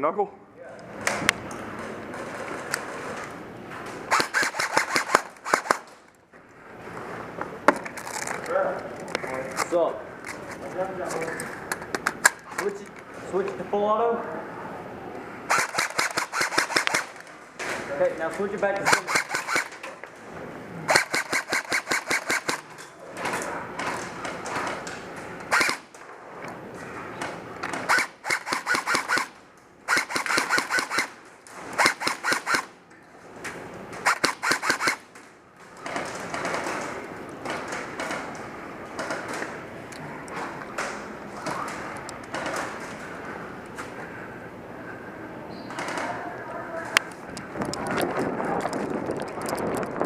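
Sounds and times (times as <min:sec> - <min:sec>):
airsoft gun shots: 0:04.1 - 0:06.0, 0:15.5 - 0:17.3, 0:18.8 - 0:19.8, 0:20.9 - 0:22.7, 0:25.5 - 0:26.0, 0:27.8 - 0:32.8, 0:34.0 - 0:35.1
rough noise: 0:14.2 - 0:44.2
airsoft gun firing single shots: 0:27.8 - 0:31.2.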